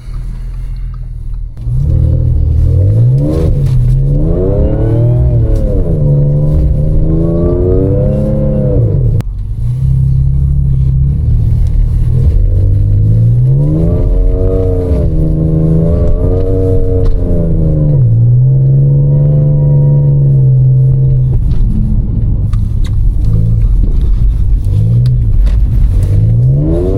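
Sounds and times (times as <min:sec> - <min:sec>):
car engine revving hard: 0:01.6 - 0:21.4, 0:23.2 - 0:26.9.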